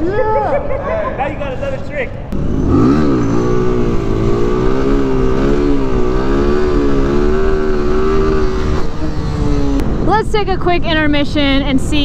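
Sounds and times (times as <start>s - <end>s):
small motorcycle engine revving: 2.4s - 10.0s.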